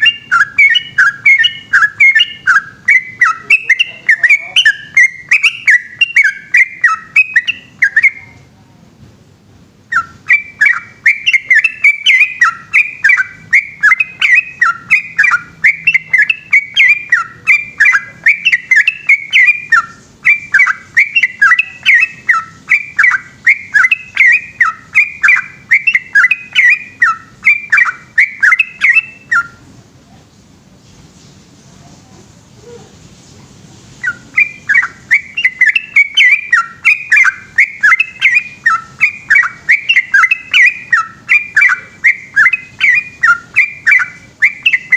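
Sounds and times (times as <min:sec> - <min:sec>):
bird singing bubbly whistles: 0:00.0 - 0:08.4, 0:09.9 - 0:29.6, 0:34.0 - 0:44.9.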